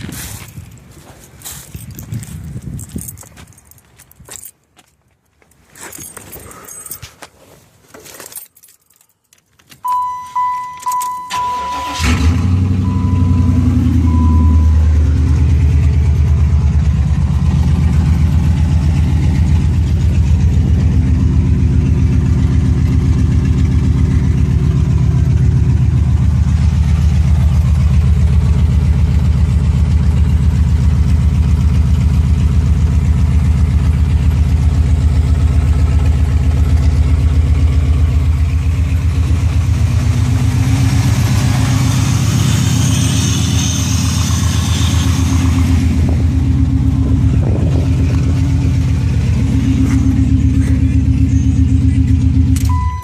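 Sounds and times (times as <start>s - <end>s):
car engine cranking and idling: 0.0s - 53.0s
beeping warning chime: 9.8s - 15.1s, 52.7s - 53.0s.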